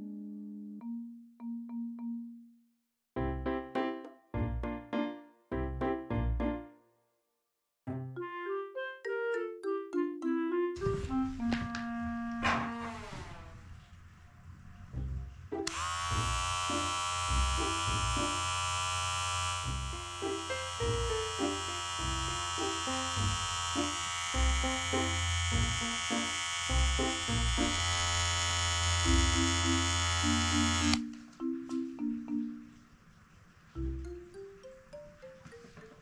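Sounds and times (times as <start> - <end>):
light mallet music: 0.0 - 2.6, 7.9 - 10.8, 29.3 - 32.9, 33.8 - 36.0
electric pet clipper buzzing: 15.6 - 31.0.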